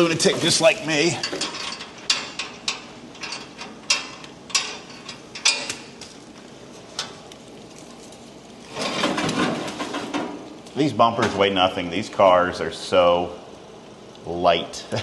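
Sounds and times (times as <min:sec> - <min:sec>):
metal clinks and knocks: 0:01.2 - 0:06.0.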